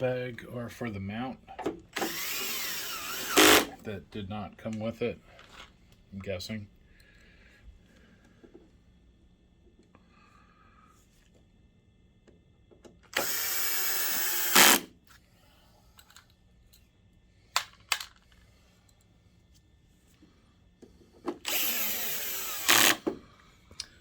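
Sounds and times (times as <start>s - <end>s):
electric screwdriver running: 2.0s - 3.8s, 13.2s - 14.9s, 21.4s - 23.0s.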